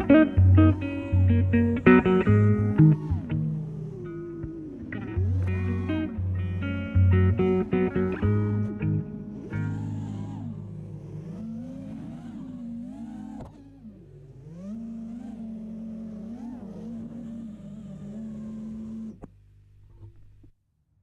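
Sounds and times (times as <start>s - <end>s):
quadcopter propellers whining: 0.0s - 19.3s.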